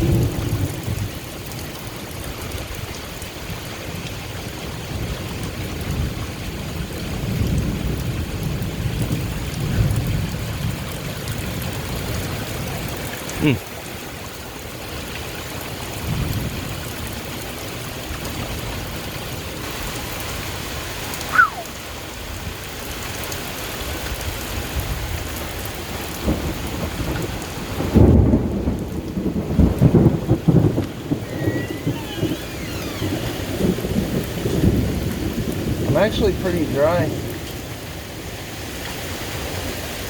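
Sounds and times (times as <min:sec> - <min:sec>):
heavy rain falling: 0:00.0 - 0:40.0
thunder rumbling: 0:26.2 - 0:38.3.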